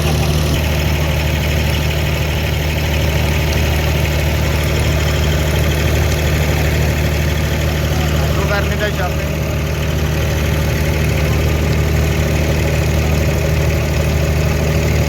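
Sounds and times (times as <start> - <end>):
boat diesel engine humming: 0.0 - 15.0.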